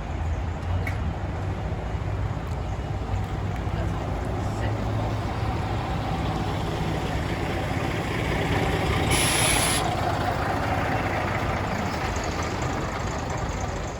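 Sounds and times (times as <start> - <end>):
bus diesel engine running: 0.0 - 13.9
compressed air hiss: 9.0 - 9.9.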